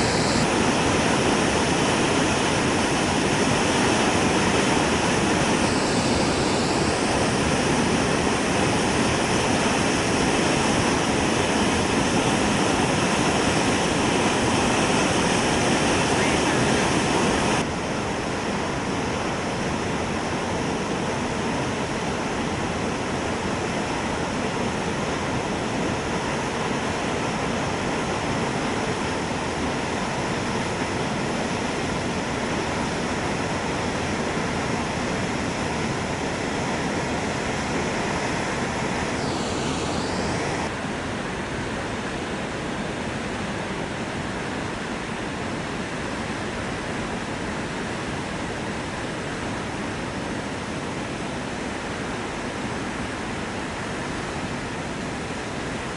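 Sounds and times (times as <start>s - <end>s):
waterfall rushing: 0.0s - 41.6s.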